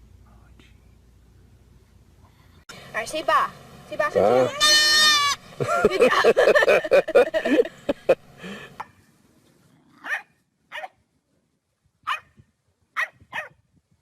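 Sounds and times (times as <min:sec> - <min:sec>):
dog yipping: 0:10.0 - 0:10.9, 0:12.1 - 0:12.3, 0:13.0 - 0:13.6.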